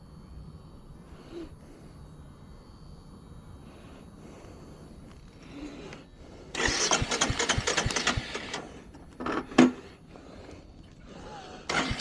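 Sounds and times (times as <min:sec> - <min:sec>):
engine burst: 0:06.5 - 0:08.9, 0:11.6 - 0:12.0
engine cranking by starter: 0:06.5 - 0:09.9, 0:11.6 - 0:12.0.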